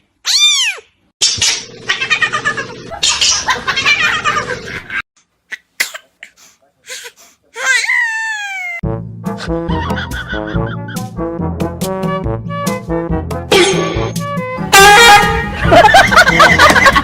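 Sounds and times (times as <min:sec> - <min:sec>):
person laughing: 0:09.4 - 0:11.0, 0:15.2 - 0:17.0
brass band music: 0:10.3 - 0:17.0.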